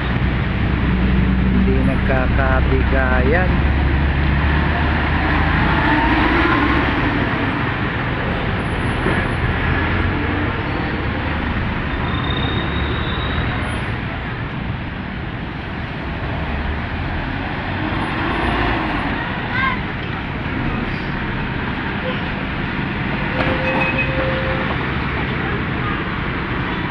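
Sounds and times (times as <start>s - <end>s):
low engine rumble: 0.0s - 5.6s
traffic engines running: 0.0s - 26.9s.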